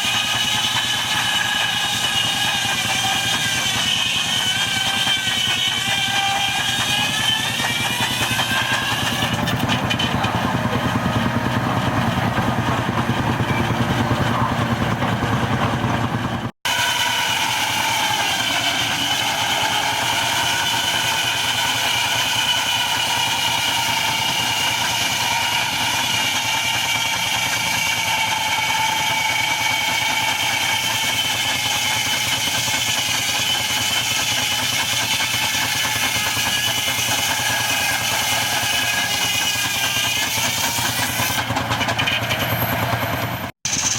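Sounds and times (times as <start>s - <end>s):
machinery running: 0.0s - 43.9s.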